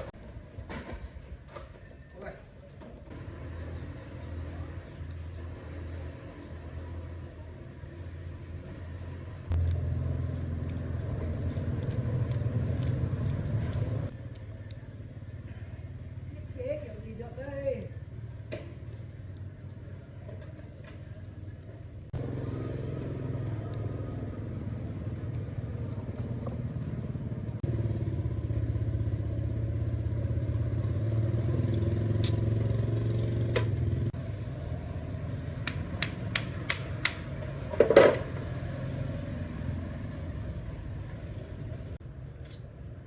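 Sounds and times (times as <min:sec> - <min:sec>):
sharp clicks: 0:35.6 - 0:37.7.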